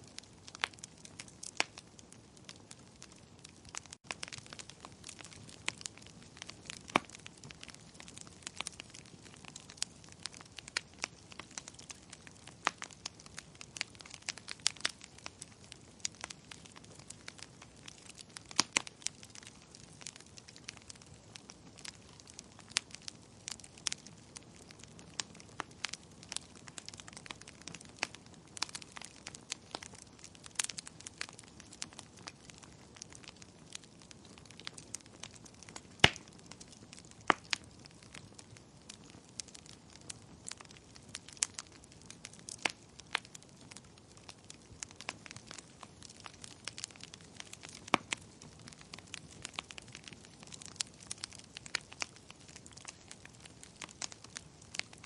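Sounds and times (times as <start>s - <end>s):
wood fire crackling: 0.0s - 55.0s
sharp pops and snaps: 3.6s - 21.0s, 34.4s - 38.2s, 38.8s - 55.0s.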